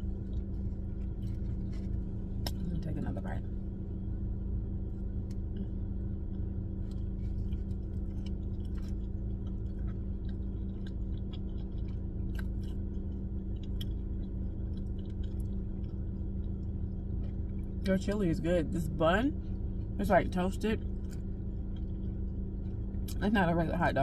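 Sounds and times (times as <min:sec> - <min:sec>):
person chewing food: 0:00.0 - 0:02.6, 0:05.0 - 0:17.9, 0:20.8 - 0:23.2
low car hum: 0:00.0 - 0:24.0.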